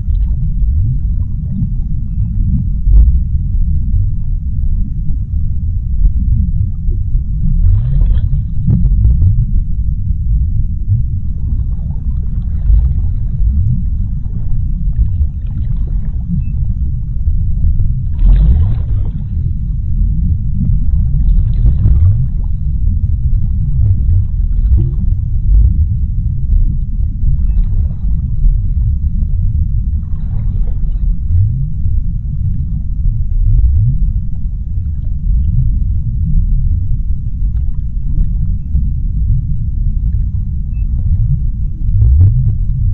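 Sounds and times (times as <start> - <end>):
low underwater rumble: 0.0 - 42.9
water surges: 18.0 - 19.6.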